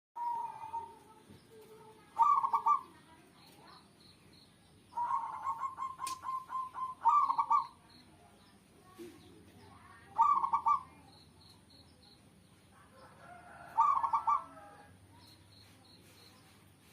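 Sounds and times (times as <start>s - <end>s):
dove cooing: 0.2s - 1.2s, 2.1s - 3.0s, 4.9s - 7.8s, 10.1s - 11.0s, 13.1s - 14.9s.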